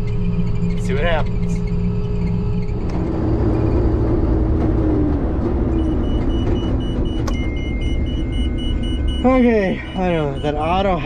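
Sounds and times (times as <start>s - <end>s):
combine harvester engine: 0.0s - 11.0s
high-pitched beeping: 5.6s - 11.0s.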